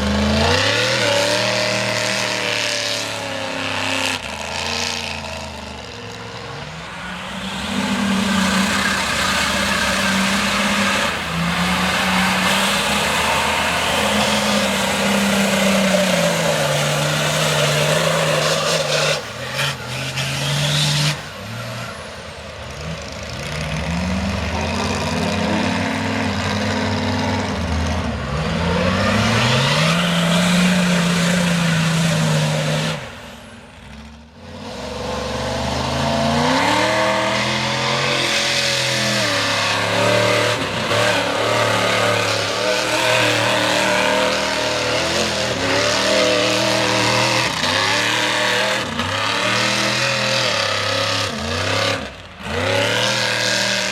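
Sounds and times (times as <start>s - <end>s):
truck engine revving hard: 0.0s - 53.9s.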